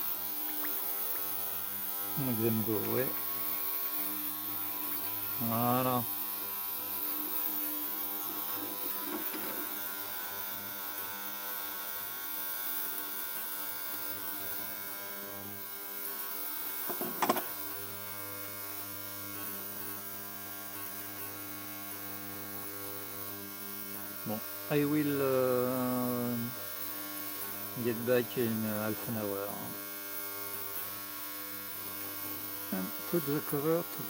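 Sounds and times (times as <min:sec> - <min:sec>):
ultrasonic cleaner buzzing hum: 0:00.0 - 0:34.0.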